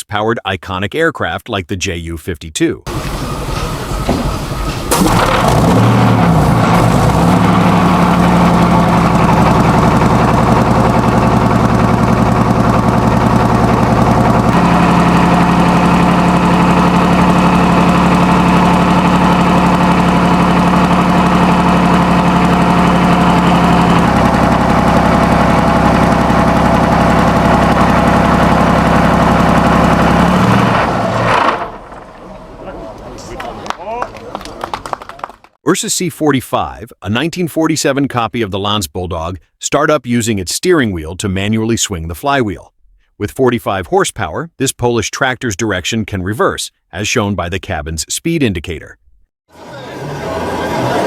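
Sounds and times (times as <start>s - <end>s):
aircraft diesel engine running: 2.9s - 33.8s, 49.5s - 51.0s.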